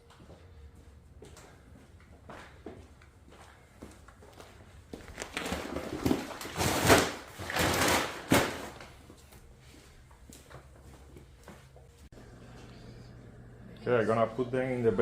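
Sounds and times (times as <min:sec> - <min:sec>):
feed bags rustling: 0:05.0 - 0:09.4.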